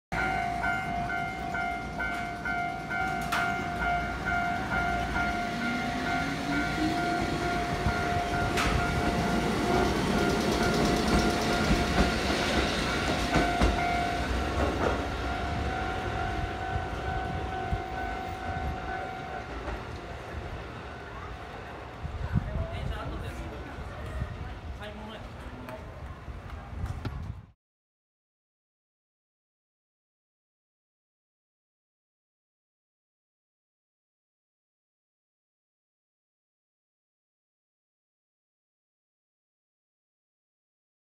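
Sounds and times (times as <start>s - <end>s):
level-crossing alarm ringing: 0.1s - 19.7s
wheels clicking over rail joints: 8.4s - 15.1s.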